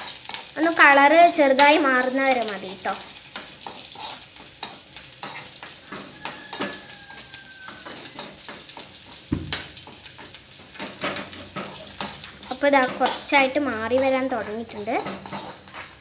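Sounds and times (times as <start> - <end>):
onions sizzling in hot oil: 0.0 - 16.0
utensil scraping a pan: 3.2 - 16.0
dull knock: 9.3 - 9.7.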